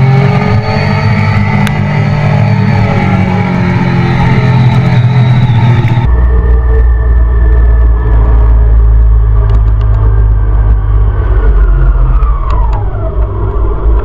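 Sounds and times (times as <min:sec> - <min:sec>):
deep dull engine rumble: 0:00.0 - 0:14.0
motorcycle engine running: 0:00.0 - 0:14.0.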